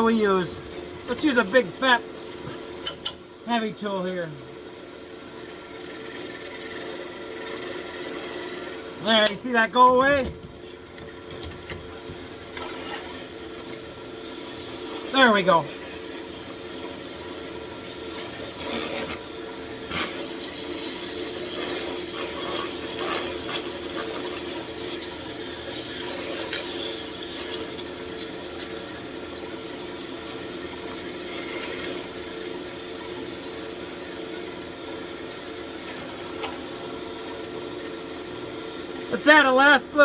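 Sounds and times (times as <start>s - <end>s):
wood lathe humming: 5.4s - 9.1s
turning tool scraping wood: 5.8s - 8.8s, 15.8s - 19.2s, 19.9s - 34.6s.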